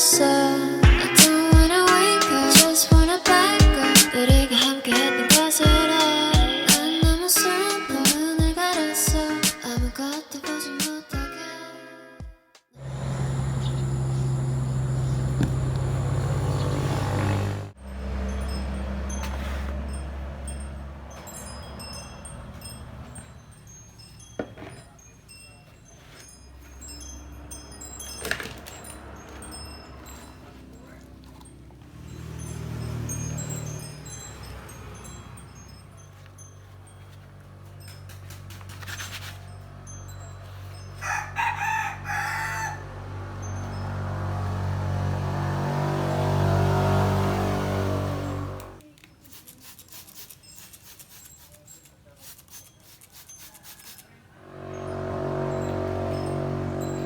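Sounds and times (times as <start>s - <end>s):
wind chimes tinkling: 0.0s - 10.2s, 12.8s - 57.0s
rooster crowing: 41.0s - 43.4s.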